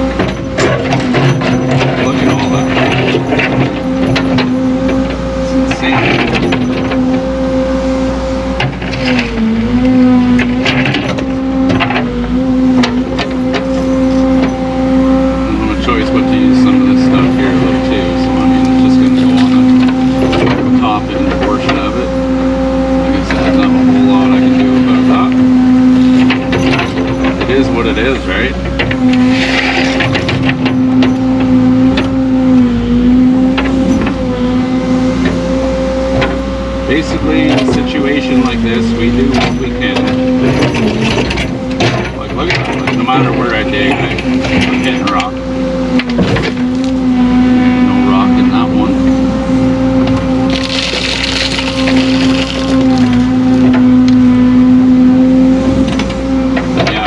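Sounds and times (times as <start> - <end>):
excavator diesel engine running: 0.0 - 57.0
bucket clanking and scraping rock: 0.3 - 4.6, 26.0 - 31.2, 37.0 - 45.3, 50.5 - 53.3
digging bucket striking rock: 50.5 - 53.2.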